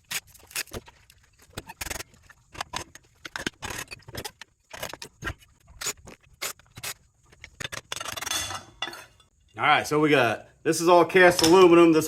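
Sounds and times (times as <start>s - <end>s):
hand tools clinking and scraping metal: 1.6s - 9.7s.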